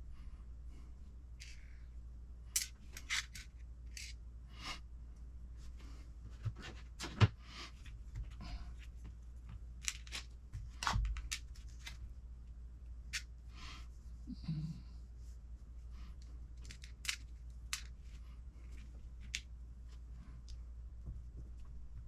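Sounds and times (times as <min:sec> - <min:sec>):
steady low hum: 0:00.0 - 0:22.0
sharp clicks of small parts: 0:02.5 - 0:04.2, 0:16.6 - 0:18.0.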